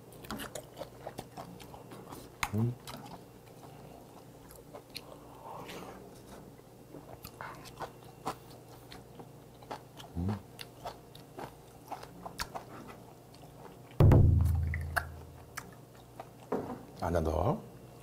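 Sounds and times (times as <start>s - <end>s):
wet chewing clicks and smacks: 0.1s - 5.2s, 7.1s - 14.0s, 14.6s - 16.5s
loud low ringing thud: 14.0s - 15.0s
short low sound: 14.0s - 15.2s.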